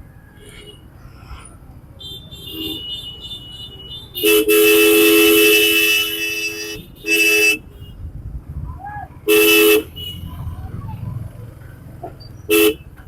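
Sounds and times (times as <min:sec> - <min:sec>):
two-tone vehicle horn honking: 0:02.0 - 0:08.0, 0:09.3 - 0:10.3, 0:12.5 - 0:12.9.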